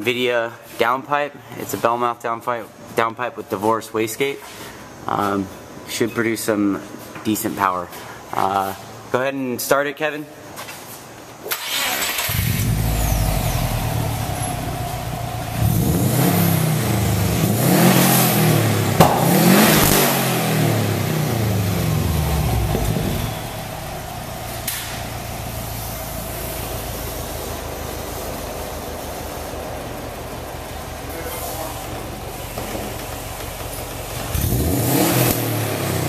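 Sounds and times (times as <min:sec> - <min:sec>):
car engine revving and idling: 0:11.7 - 0:36.0.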